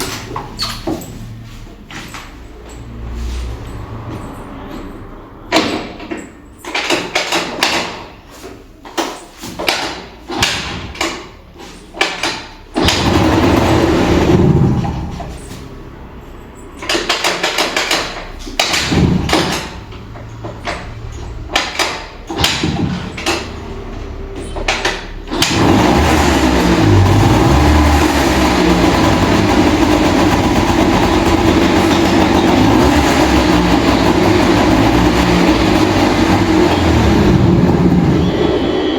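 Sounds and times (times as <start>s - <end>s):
scooter engine cranking: 8.9s - 38.9s
scooter engine running: 12.8s - 16.5s, 22.3s - 38.9s.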